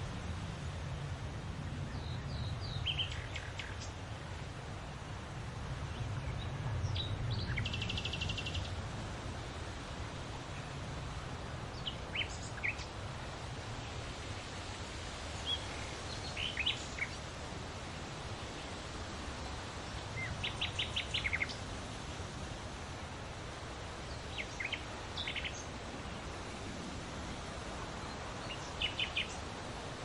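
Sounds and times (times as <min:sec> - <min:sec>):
wind in trees: 0:00.0 - 0:30.0
leaves rustling: 0:07.6 - 0:30.0
small birds chirping: 0:11.7 - 0:13.0, 0:15.3 - 0:17.3, 0:19.4 - 0:21.7, 0:23.8 - 0:26.4, 0:27.9 - 0:29.6.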